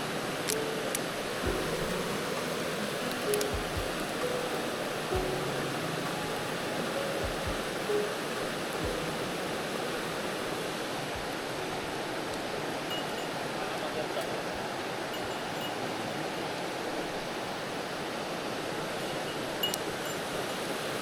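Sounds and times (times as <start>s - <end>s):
stream rushing over rocks: 0.0s - 21.0s
soft low bumps: 1.5s - 2.4s, 3.4s - 5.7s, 6.3s - 7.9s.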